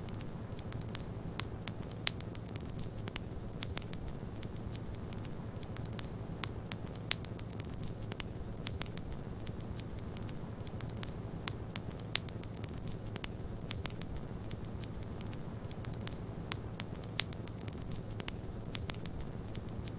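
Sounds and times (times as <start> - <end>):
wood fire crackling and popping: 0.0 - 19.9.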